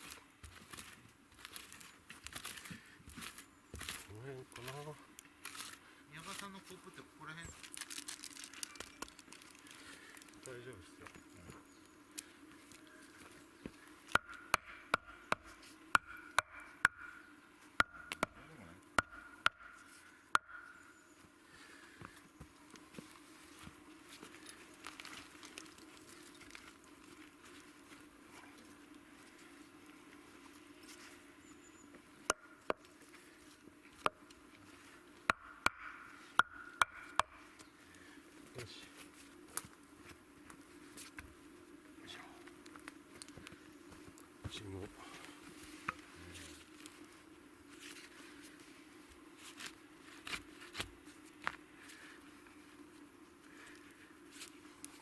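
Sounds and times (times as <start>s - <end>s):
faint steady hum: 0.0s - 55.0s
sharp ringing knocks: 16.0s - 17.2s, 35.3s - 37.4s.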